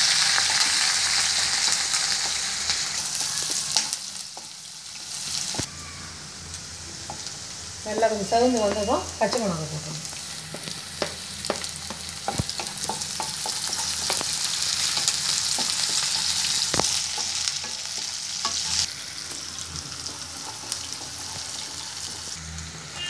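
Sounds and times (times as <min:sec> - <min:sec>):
onions sizzling in hot oil: 0:00.0 - 0:23.0
spatula tapping and scraping pan: 0:10.4 - 0:19.4.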